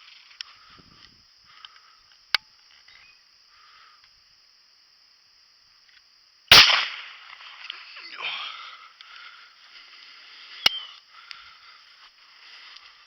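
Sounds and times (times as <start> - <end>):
faint high hiss: 0.0 - 13.0
shotgun blast: 6.5 - 7.4.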